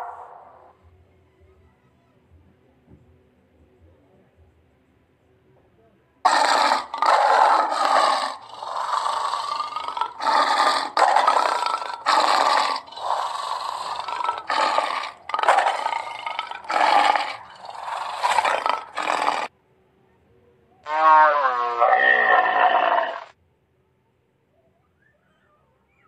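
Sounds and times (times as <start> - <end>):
lion roaring: 0.0 - 0.7, 6.3 - 19.5, 20.8 - 23.3.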